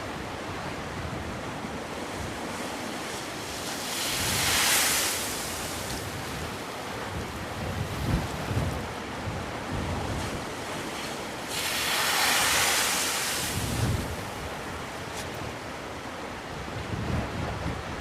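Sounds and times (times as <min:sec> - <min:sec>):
sea waves on the shore: 0:00.0 - 0:18.0
wind buffeting microphone: 0:05.4 - 0:11.0, 0:11.6 - 0:15.8, 0:16.5 - 0:18.0.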